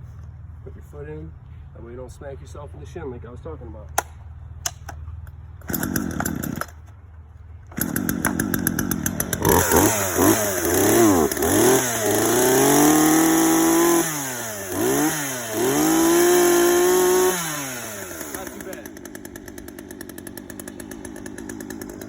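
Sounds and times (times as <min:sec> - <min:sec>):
chainsaw revving: 0:05.6 - 0:06.8, 0:07.7 - 0:22.0.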